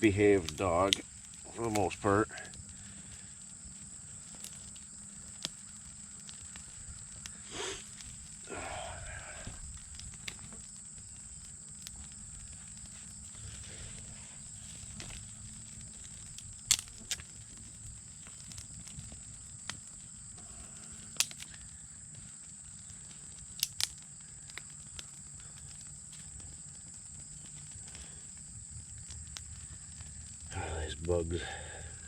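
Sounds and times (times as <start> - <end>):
low background hum: 0.0 - 10.2
campfire crackling and popping: 0.0 - 32.0.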